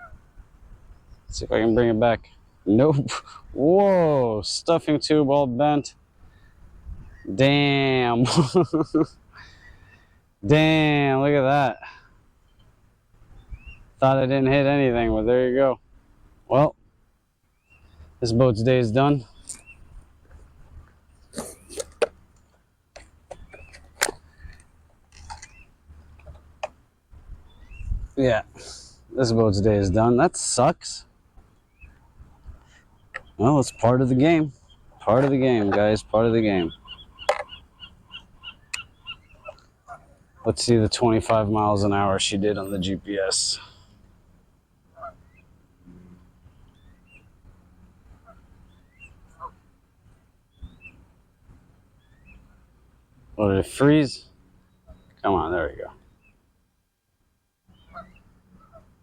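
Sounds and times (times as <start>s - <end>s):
birds chirping: 0.0s - 56.8s, 57.6s - 59.0s
rustle: 0.0s - 59.0s
sharp clicks or knocks: 37.2s - 37.5s.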